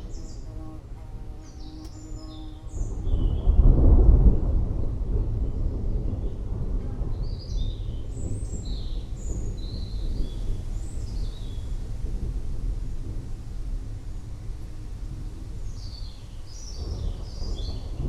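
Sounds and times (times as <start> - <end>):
forest birds chirping: 0.0 - 3.8, 7.2 - 11.9, 14.0 - 18.0
distant thunder rumbling: 0.0 - 18.0.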